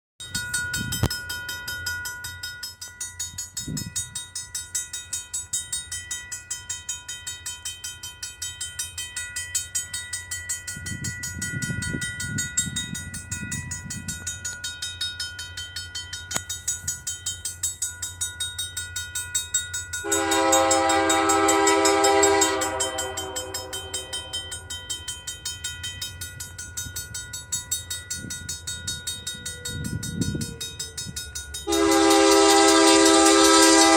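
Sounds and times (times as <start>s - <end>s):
train horn blast: 20.0s - 24.4s, 31.7s - 33.9s
level crossing bell ringing: 20.0s - 26.0s.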